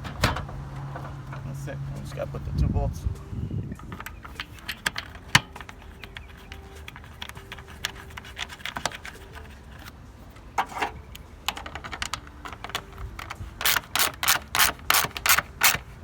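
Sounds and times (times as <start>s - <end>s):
ratchet wrench clicking: 3.9s - 9.2s, 11.6s - 15.9s.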